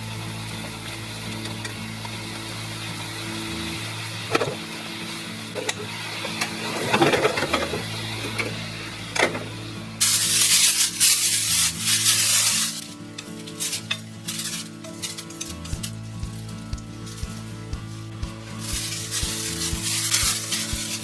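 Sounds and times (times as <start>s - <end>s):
background music: 0.0s - 21.0s
food sizzling in a pan: 10.0s - 15.4s, 18.2s - 21.0s.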